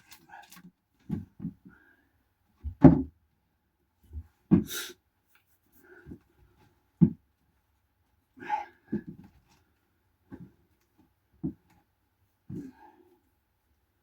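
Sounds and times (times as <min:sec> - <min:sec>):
objects knocking and clunking: 0:02.6 - 0:03.2.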